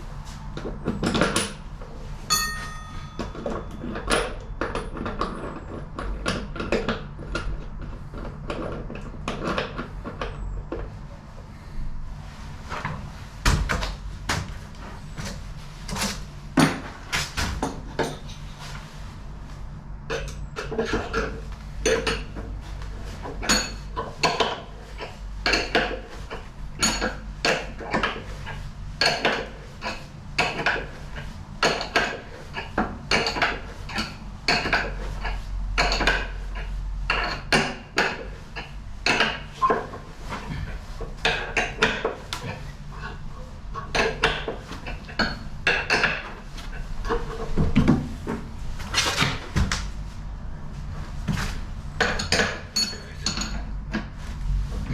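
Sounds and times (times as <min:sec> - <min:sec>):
tools and metal parts clinking: 0:02.3 - 0:07.6, 0:52.0 - 0:54.0.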